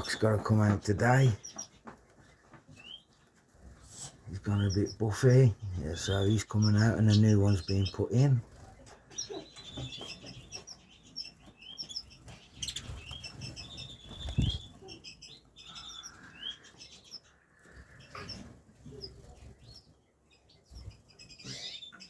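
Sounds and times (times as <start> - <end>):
finches chirping: 0.0 - 22.0
wings fluttering: 7.0 - 20.0.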